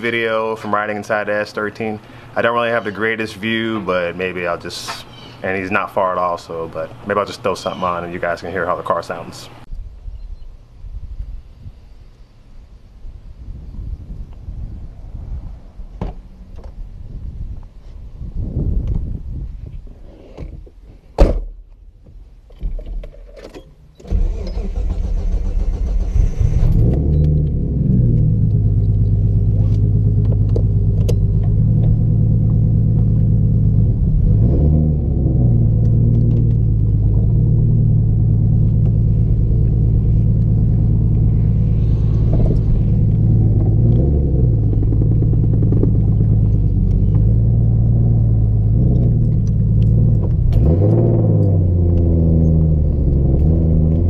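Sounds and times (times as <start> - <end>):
car engine starting and idling: 23.8 - 54.0.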